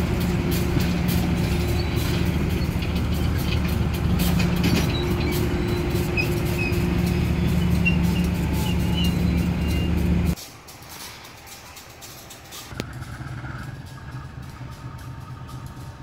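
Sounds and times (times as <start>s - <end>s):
train wagons rolling drone: 0.0s - 16.0s
faint high squeals: 1.3s - 10.3s.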